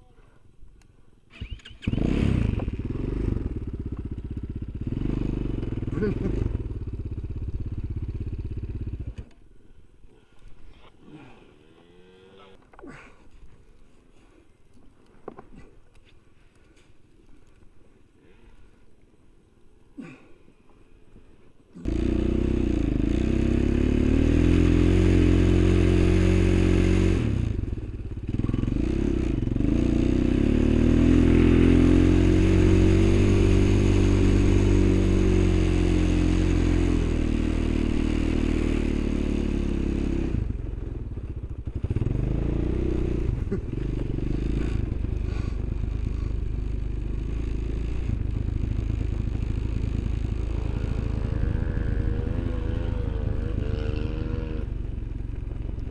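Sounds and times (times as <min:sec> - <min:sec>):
off-road vehicle engine revving: 0:01.4 - 0:09.1, 0:21.8 - 0:55.9.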